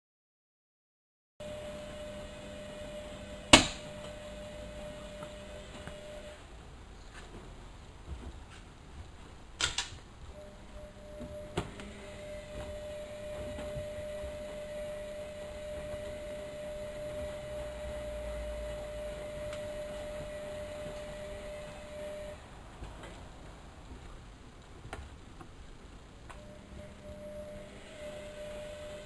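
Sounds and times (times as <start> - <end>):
washing machine motor whining: 1.4 - 6.8, 10.2 - 24.1, 26.3 - 29.0
washing machine sharp clicks: 3.5 - 4.0.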